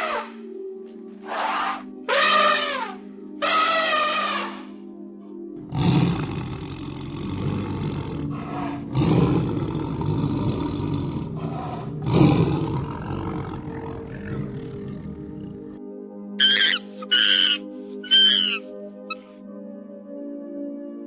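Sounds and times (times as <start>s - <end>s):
lion roaring and growling: 5.6s - 15.8s.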